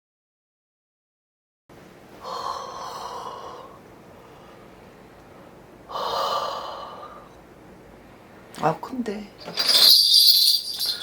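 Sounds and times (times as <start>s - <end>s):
low room hiss: 1.7s - 11.0s
woman breathing heavily: 2.2s - 4.8s, 5.9s - 7.4s.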